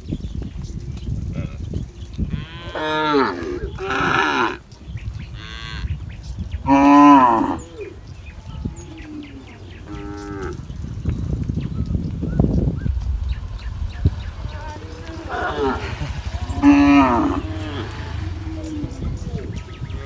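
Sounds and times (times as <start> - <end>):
cattle mooing: 2.3 - 4.7, 6.6 - 10.8, 14.4 - 20.0
low rumbling noise: 4.9 - 20.0.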